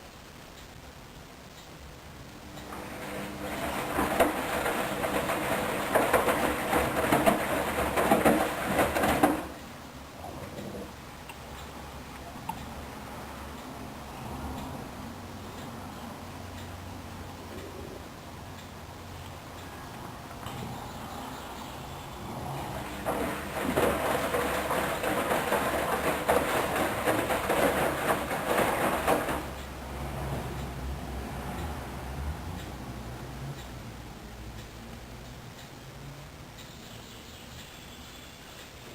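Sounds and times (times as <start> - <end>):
washing machine drum tumbling: 2.7 - 9.6, 22.2 - 30.5.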